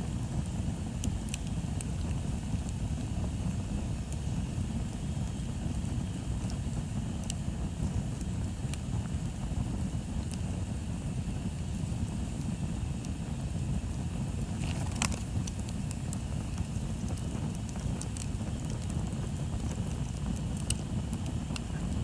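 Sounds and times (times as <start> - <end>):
bonfire crackling: 0.0 - 22.0
fire popping and snapping: 0.0 - 22.0
steady low rumble: 0.0 - 22.0.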